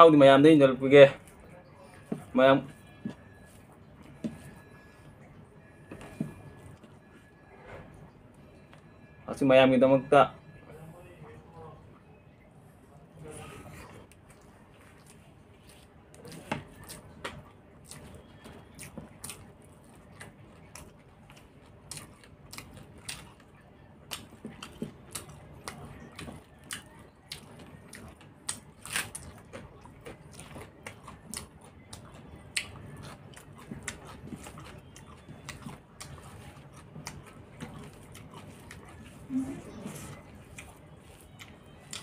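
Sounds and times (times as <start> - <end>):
man chewing and lip smacking: 13.8 - 42.0.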